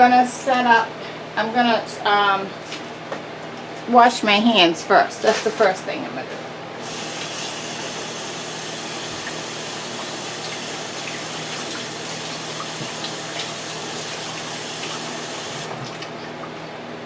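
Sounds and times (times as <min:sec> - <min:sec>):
tap running: 0:06.8 - 0:16.7
microwave humming: 0:06.8 - 0:17.0
water splashes: 0:07.0 - 0:16.4.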